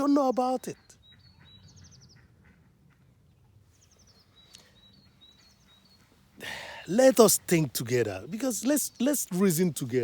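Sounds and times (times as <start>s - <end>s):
small bird chirping: 3.8s - 6.3s.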